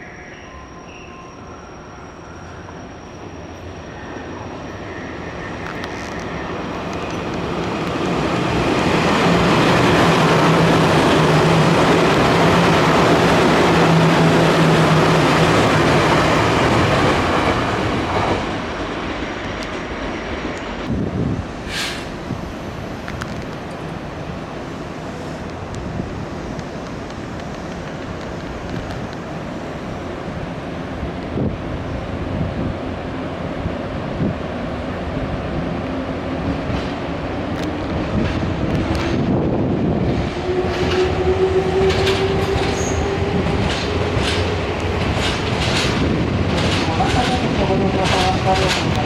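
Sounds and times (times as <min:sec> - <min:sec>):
train wheels rumbling on rails: 0:04.0 - 0:49.0
train wheels clacking over rail joints: 0:40.7 - 0:49.0.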